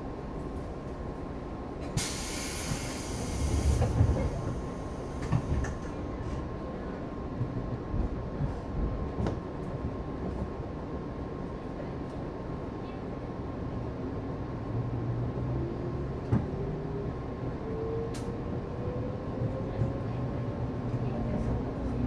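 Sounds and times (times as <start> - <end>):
train interior rumble: 0.0 - 22.0
compressed air hissing: 2.0 - 3.8.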